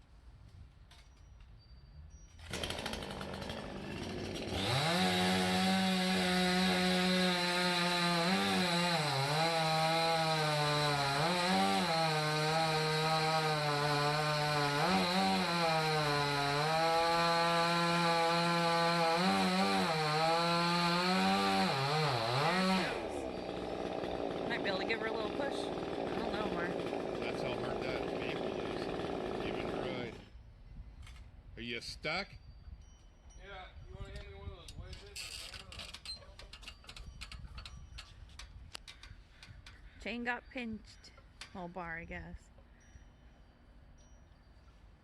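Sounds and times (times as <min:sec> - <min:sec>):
chainsaw cutting wood: 0:02.4 - 0:30.4.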